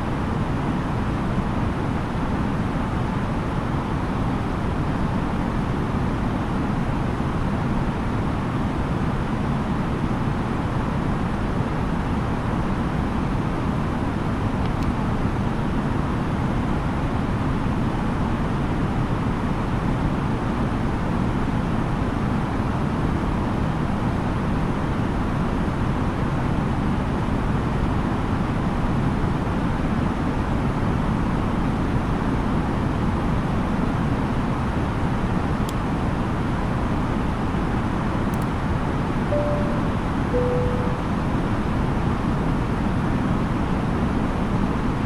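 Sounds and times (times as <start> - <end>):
faint click: 38.3 - 38.5.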